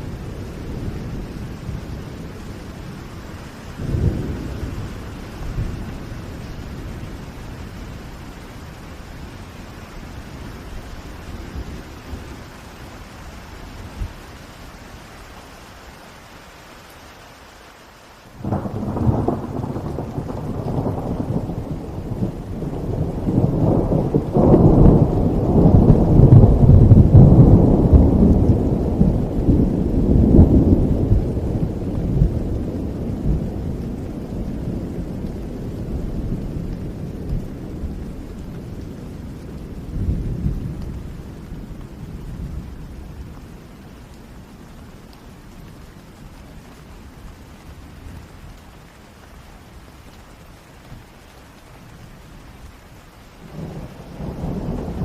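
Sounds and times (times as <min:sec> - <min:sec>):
steady rain: 0:00.0 - 0:55.0
thunder rolling: 0:18.4 - 0:41.4, 0:53.5 - 0:55.0.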